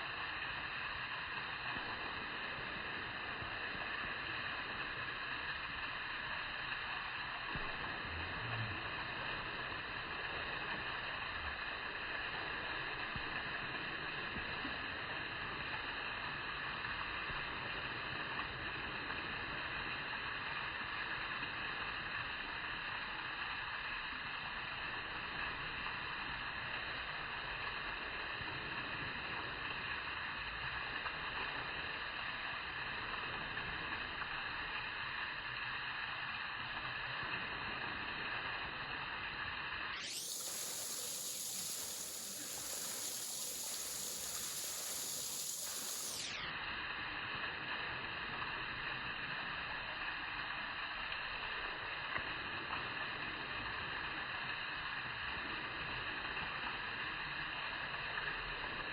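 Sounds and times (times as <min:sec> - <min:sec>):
steady rushing noise: 0:40.0 - 0:46.4.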